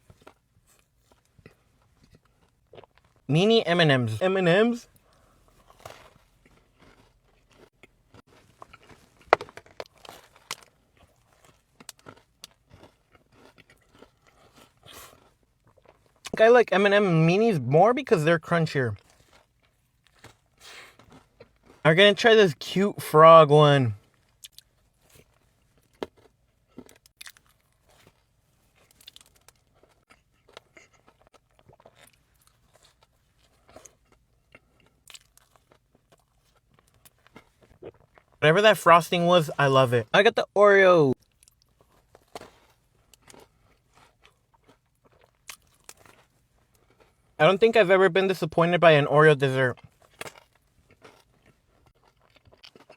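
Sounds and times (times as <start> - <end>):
soft chewing: 0.0 - 3.3, 4.8 - 16.4, 19.0 - 21.9, 24.0 - 38.4, 41.1 - 47.4, 49.8 - 52.9.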